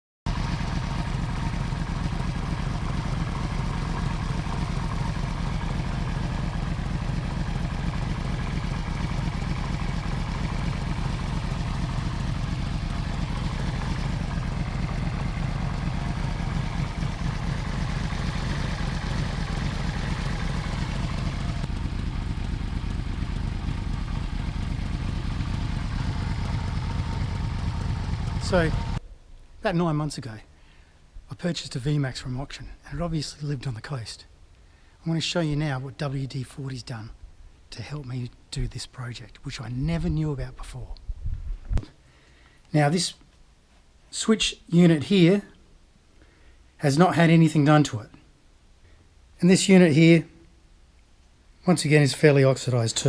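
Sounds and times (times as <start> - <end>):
motorcycle engine idling: 0.3 - 29.0.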